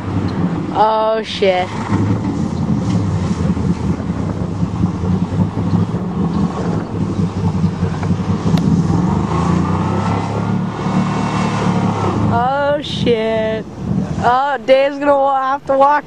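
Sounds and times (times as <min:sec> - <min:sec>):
pickup truck engine running: 0:00.0 - 0:16.0.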